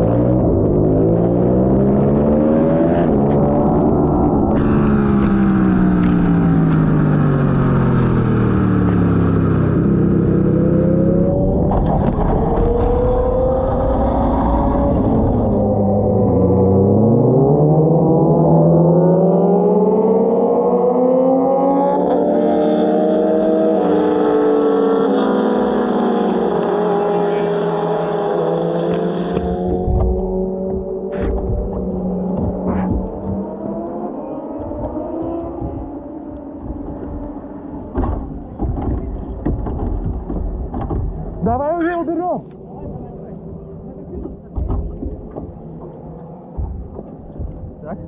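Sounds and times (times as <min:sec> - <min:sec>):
racing motorcycle engines: 0:00.0 - 0:48.0
motorcycle engine running: 0:21.8 - 0:41.5.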